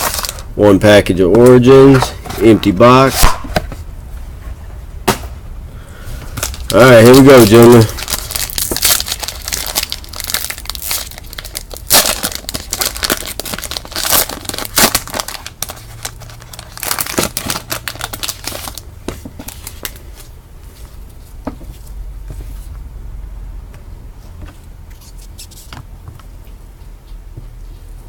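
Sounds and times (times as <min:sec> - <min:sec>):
plastic wrapper crinkling and tearing: 0:00.0 - 0:00.5, 0:06.4 - 0:20.3.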